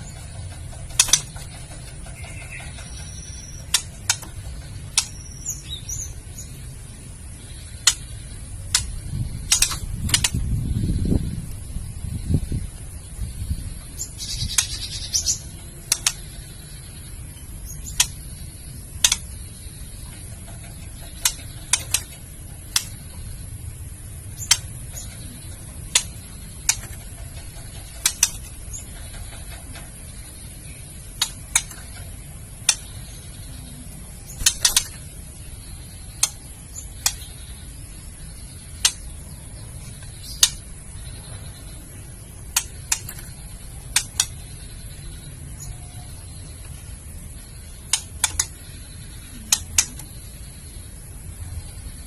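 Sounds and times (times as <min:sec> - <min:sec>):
low steady hum: 0:00.0 - 0:52.0
bird giving dry clicks: 0:00.1 - 0:05.3, 0:07.5 - 0:10.5, 0:14.1 - 0:16.6, 0:17.7 - 0:18.4, 0:19.0 - 0:23.3, 0:24.4 - 0:33.3, 0:34.3 - 0:35.1, 0:35.9 - 0:37.6, 0:38.6 - 0:41.3, 0:42.4 - 0:44.6, 0:47.6 - 0:50.2.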